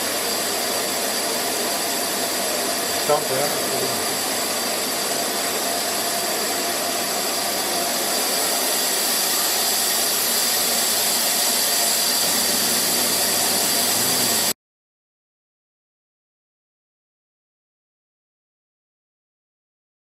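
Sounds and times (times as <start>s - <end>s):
router spindle whining: 0.0s - 14.6s.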